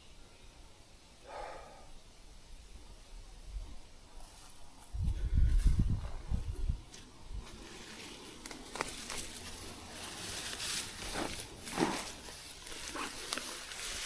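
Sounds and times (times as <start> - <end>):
faint outdoor hiss: 0.0 - 14.0
footsteps scuffing on trail: 4.2 - 5.8, 6.9 - 14.0.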